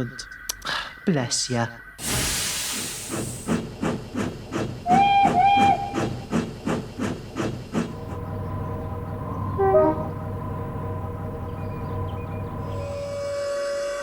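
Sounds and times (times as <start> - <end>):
steam escaping: 2.0 - 3.7
steam locomotive chuffing: 2.0 - 14.0
train whistle toots: 4.8 - 6.1, 9.6 - 10.1, 12.8 - 14.0.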